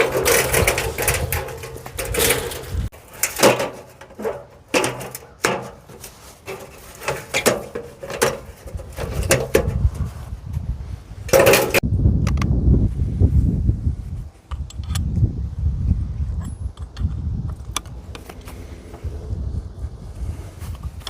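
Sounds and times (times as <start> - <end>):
scrap metal clanking: 0.0 - 10.3, 11.2 - 11.8.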